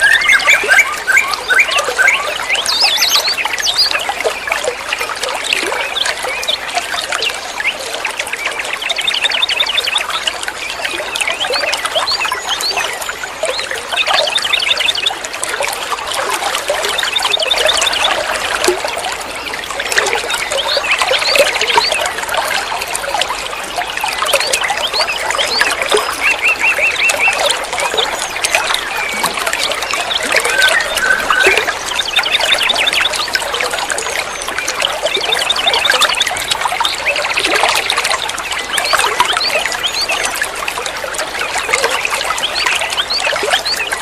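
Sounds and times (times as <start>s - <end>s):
birds chirping: 0.0s - 4.4s, 24.0s - 40.6s
water trickling: 0.0s - 44.0s.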